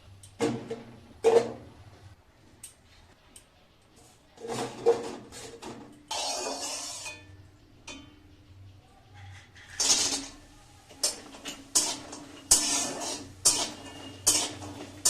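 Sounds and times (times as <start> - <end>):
utensils and dishes clinking: 4.4 - 8.7, 9.4 - 15.0.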